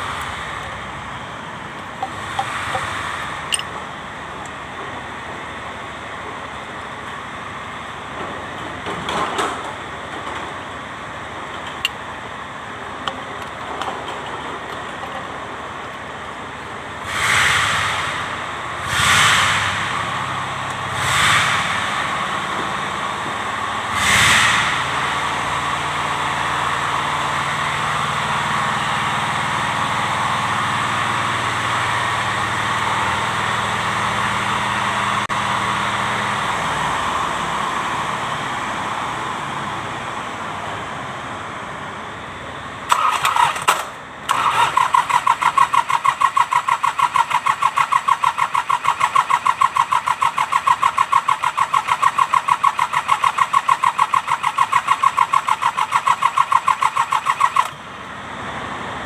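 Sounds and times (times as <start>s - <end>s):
tractor engine running: 0.0s - 59.0s
starter motor cranking: 42.9s - 57.8s.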